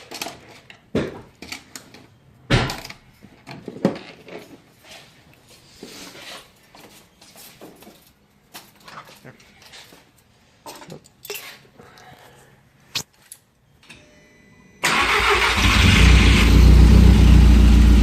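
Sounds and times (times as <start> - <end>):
tools clattering and knocking: 7.6 - 11.7.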